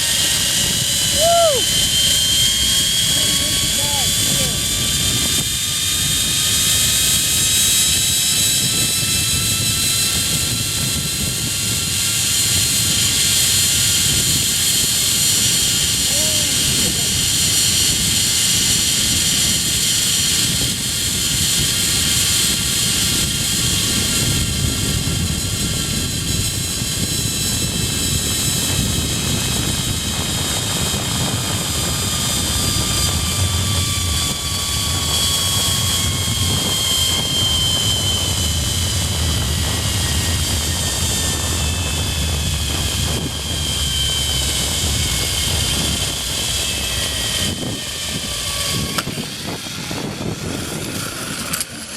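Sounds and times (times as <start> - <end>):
zipline pulleys whirring on cable: 0.0 - 11.0, 25.0 - 51.9
wind rush on microphone: 0.0 - 51.9.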